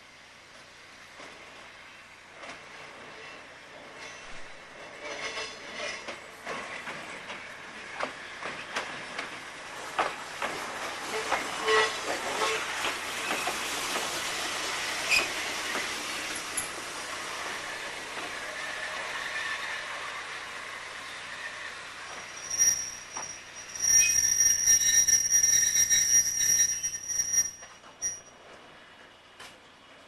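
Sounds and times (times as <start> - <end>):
railcar approaching: 0.0 - 30.0
wheel squeals: 15.0 - 15.5, 21.2 - 28.3
wheels clicking over rail joints: 15.0 - 16.9, 22.0 - 28.3.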